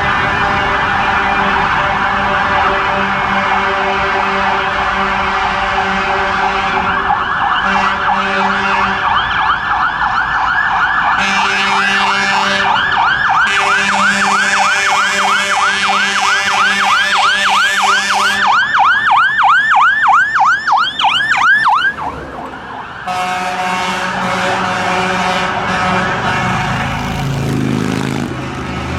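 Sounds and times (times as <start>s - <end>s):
electronic sirens yelping: 0.2s - 27.5s
low horn-like tone: 23.1s - 26.9s.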